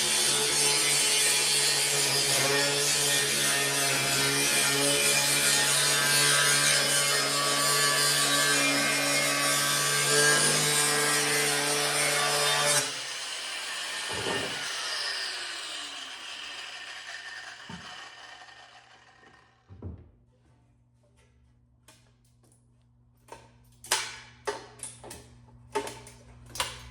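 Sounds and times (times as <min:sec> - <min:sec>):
angle grinder cutting steel: 0:00.0 - 0:19.7
grinder disc winding down: 0:14.0 - 0:19.7.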